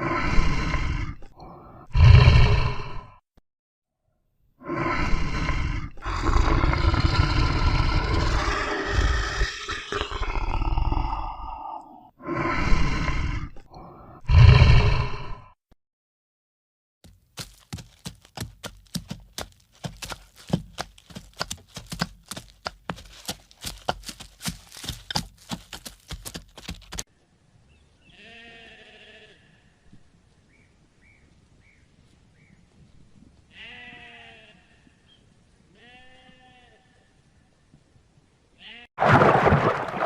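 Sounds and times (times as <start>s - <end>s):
farm animal bleating: 28.0s - 29.8s, 33.5s - 35.1s, 35.7s - 37.2s, 38.6s - 38.9s.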